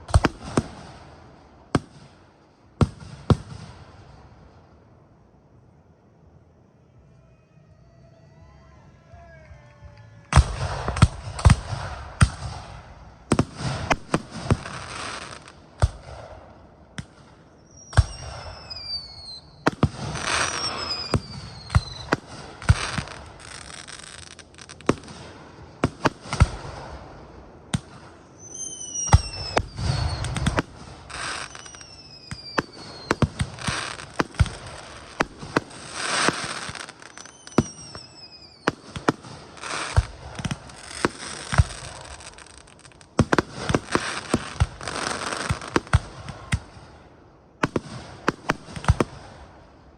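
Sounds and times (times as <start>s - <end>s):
fireworks bangs: 0.0s - 4.7s, 10.3s - 49.9s
fireworks crackling: 0.0s - 4.7s, 10.2s - 49.9s
whistles falling in pitch: 20.3s - 22.1s, 28.4s - 30.5s, 31.4s - 33.3s, 36.8s - 38.7s.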